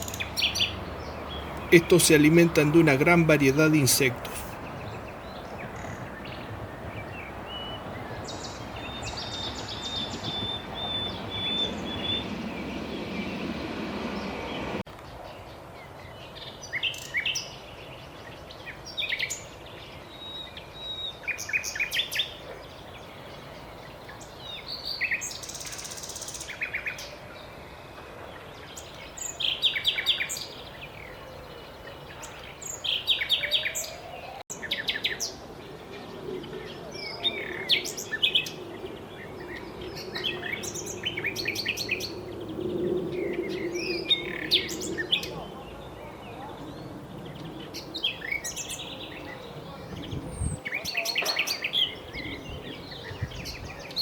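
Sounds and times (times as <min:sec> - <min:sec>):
nightingale singing: 0:00.0 - 0:06.4.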